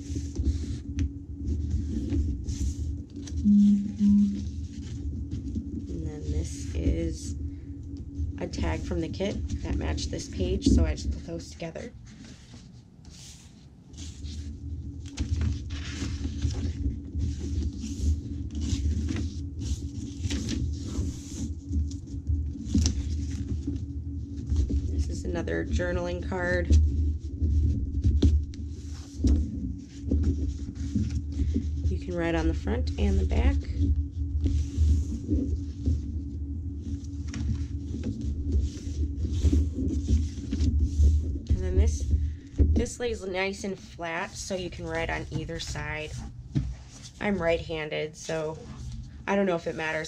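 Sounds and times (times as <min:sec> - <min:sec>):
paper pages rustling: 0:00.0 - 0:03.4, 0:04.4 - 0:05.6, 0:11.2 - 0:25.0, 0:27.5 - 0:31.8, 0:34.4 - 0:36.1, 0:36.8 - 0:42.4
steady low hum: 0:00.0 - 0:50.0.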